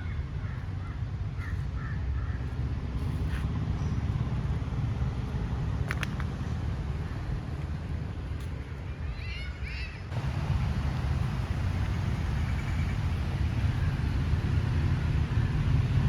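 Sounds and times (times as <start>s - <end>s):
birds calling: 0.0s - 2.6s, 9.0s - 15.6s
steady low rumble: 10.1s - 16.0s.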